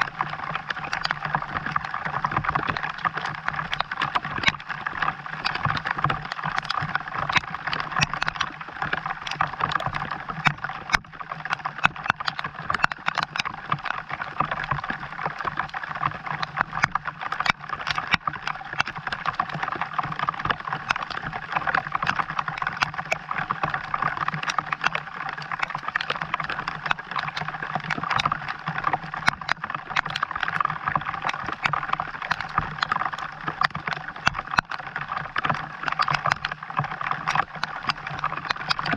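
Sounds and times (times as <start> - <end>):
raindrops ticking: 0.0 - 38.9.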